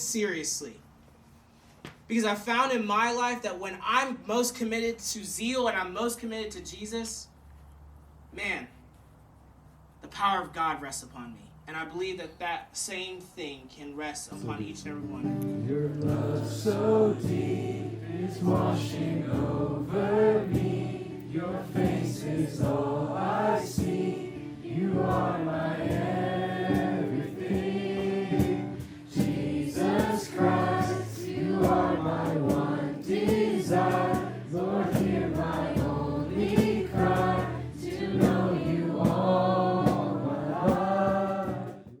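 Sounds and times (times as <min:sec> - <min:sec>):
group singing worship song: 0:15.5 - 0:42.0.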